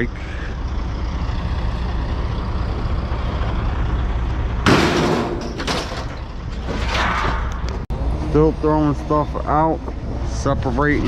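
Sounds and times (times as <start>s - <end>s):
vehicle engine idling: 0.0s - 4.7s
scrap clattering down: 4.6s - 7.8s.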